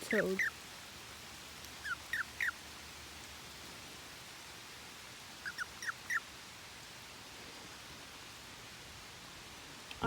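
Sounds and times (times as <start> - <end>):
faint steady hiss: 0.0 - 10.0
animal squeaky calls: 1.8 - 2.6, 5.4 - 6.2.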